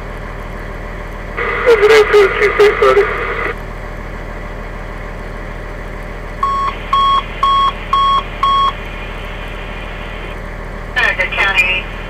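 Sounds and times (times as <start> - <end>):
low hum: 0.0 - 12.0
short electronic beeps: 6.4 - 8.8.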